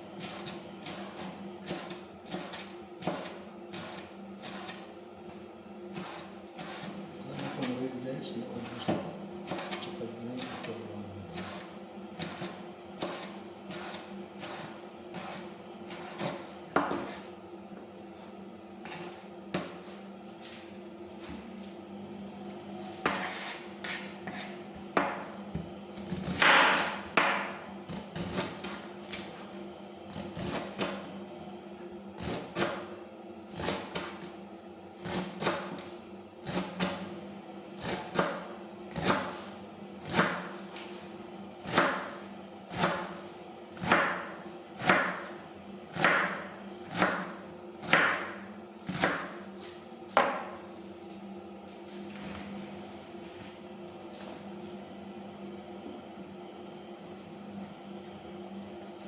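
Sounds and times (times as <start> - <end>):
knife chopping on cutting board: 0.2 - 7.8, 8.5 - 17.3, 18.8 - 20.6, 22.8 - 29.4, 30.1 - 31.0, 32.2 - 34.4, 35.0 - 37.1, 37.8 - 40.9, 41.6 - 43.2, 43.8 - 50.6.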